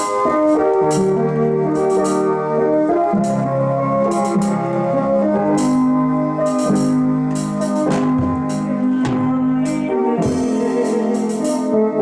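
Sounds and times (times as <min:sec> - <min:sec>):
organ-like keyboard chords: 0:00.0 - 0:12.0
crisp percussion hits: 0:06.5 - 0:10.6.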